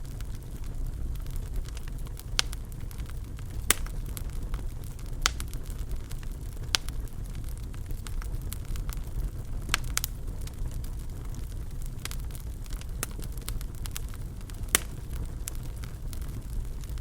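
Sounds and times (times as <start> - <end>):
wood fire crackling: 0.0 - 17.0
wood popping: 1.3 - 6.9, 12.0 - 17.0.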